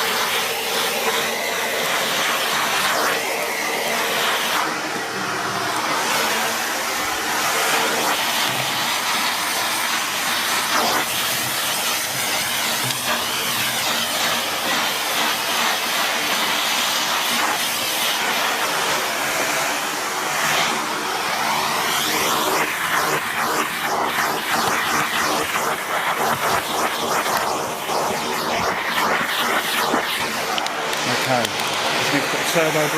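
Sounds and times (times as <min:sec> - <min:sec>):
vacuum cleaner suction hiss: 0:00.0 - 0:32.9.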